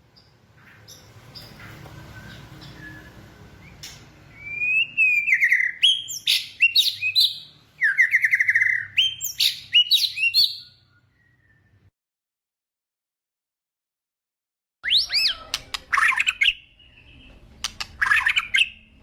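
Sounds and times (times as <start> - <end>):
bird singing whistles and trills: 2.1 - 11.9, 14.8 - 17.4.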